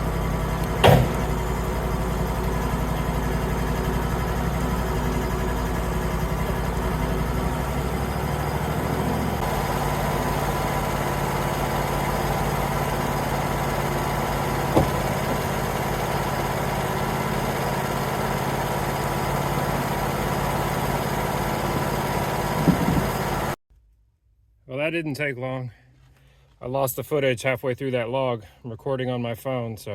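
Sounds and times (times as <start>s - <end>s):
sawmill engine running: 0.0s - 23.6s.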